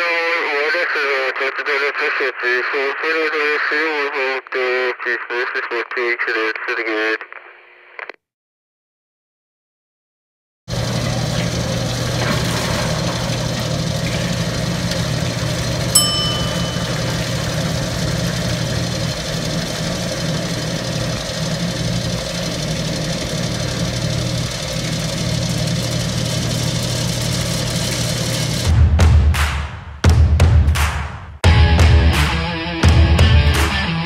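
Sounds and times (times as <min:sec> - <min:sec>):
pump motor humming: 0:10.7 - 0:28.7
bell-like ding: 0:15.9 - 0:17.6.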